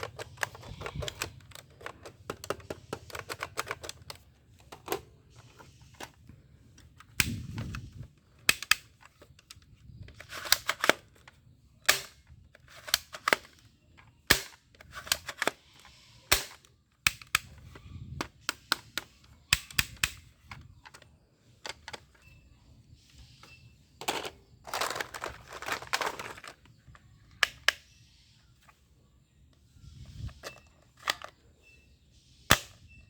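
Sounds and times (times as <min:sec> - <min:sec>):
toy pistol spring action snapping: 0:08.5 - 0:08.9, 0:16.3 - 0:17.6, 0:18.5 - 0:20.3.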